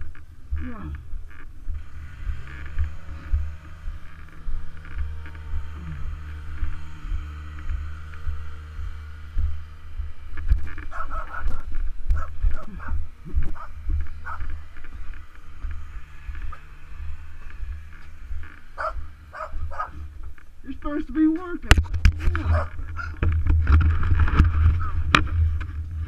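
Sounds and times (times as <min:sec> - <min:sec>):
motorcycle engine rumbling: 0:00.0 - 0:26.0
dog barking: 0:10.9 - 0:13.0, 0:18.8 - 0:20.0, 0:22.4 - 0:23.2.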